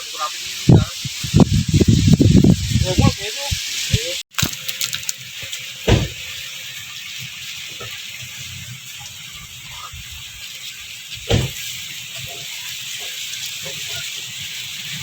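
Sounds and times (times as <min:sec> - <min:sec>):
dull thumps: 0:11.2 - 0:11.6.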